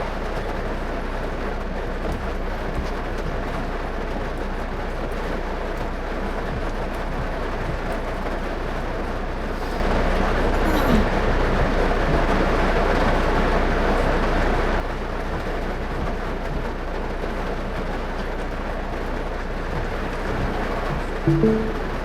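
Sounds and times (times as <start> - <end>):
car road and engine rumble: 0.0 - 21.2
heavy rain: 0.0 - 21.8
tyres hissing on wet road: 0.1 - 14.9.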